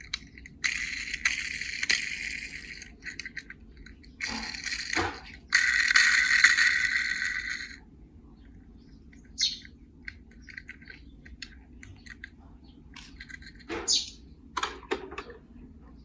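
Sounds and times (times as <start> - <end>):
toy cars clicking and clacking: 0.0 - 7.8, 10.0 - 12.3.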